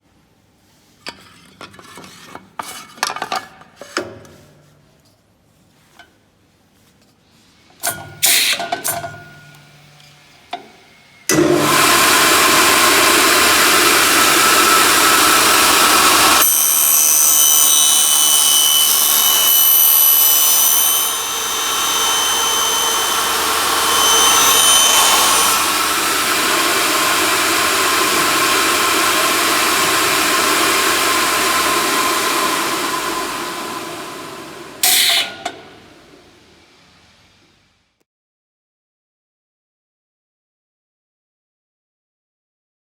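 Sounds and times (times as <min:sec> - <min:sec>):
milling machine cutter drive: 0:11.3 - 0:35.7
high whining cutter tones: 0:11.3 - 0:35.8.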